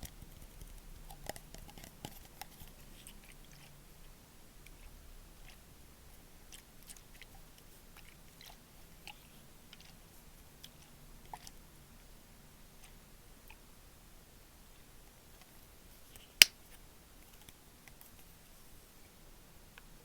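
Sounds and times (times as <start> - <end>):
small clicks and crackles: 0.0 - 3.8.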